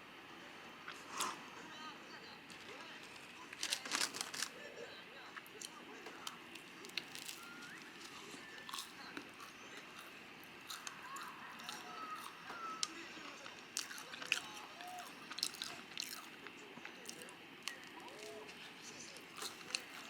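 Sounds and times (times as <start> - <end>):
faint voices murmuring: 0.0 - 20.0
crunchy bites and chewing: 5.5 - 13.0, 13.7 - 20.0.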